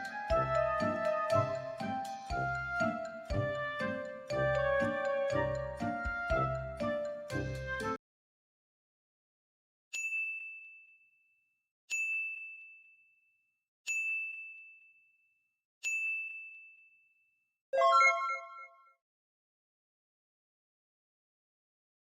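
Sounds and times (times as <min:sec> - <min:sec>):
bell-like dings: 0:10.0 - 0:11.2, 0:11.9 - 0:13.1, 0:13.9 - 0:15.1, 0:15.8 - 0:17.1.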